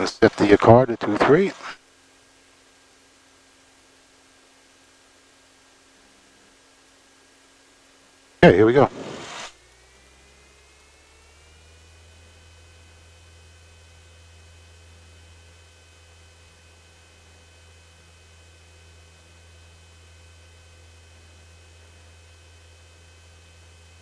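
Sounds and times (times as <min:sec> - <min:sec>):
faint aircraft engine hum: 0:00.0 - 0:01.8.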